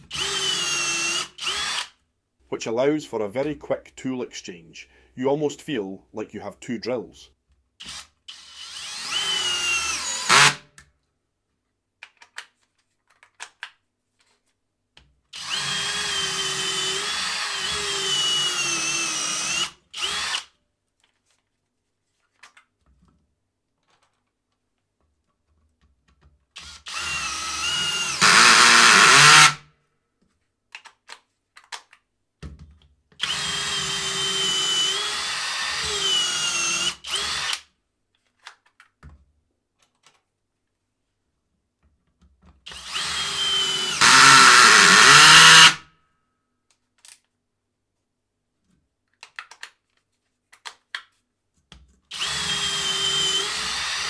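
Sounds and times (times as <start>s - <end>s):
cordless drill running: 0.0s - 1.9s, 7.8s - 10.6s, 15.4s - 20.5s, 26.6s - 29.6s, 33.2s - 37.6s, 42.7s - 45.8s, 52.1s - 54.0s.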